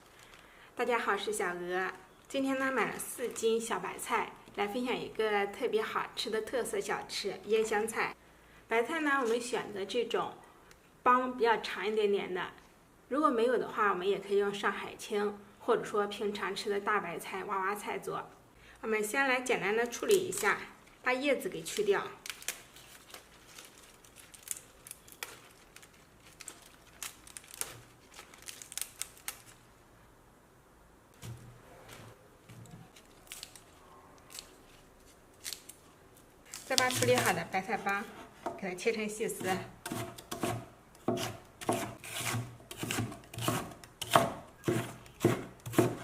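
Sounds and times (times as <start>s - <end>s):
leaves rustling: 20.0s - 29.8s, 32.8s - 37.7s
crisp stalks snapping: 21.7s - 29.6s, 32.9s - 35.8s, 36.4s - 37.4s.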